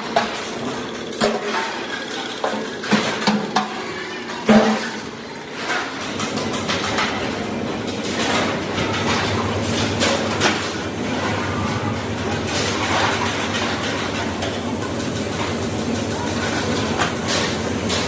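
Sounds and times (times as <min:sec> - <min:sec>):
clicks and clanks: 0:00.1 - 0:05.0, 0:05.6 - 0:10.8.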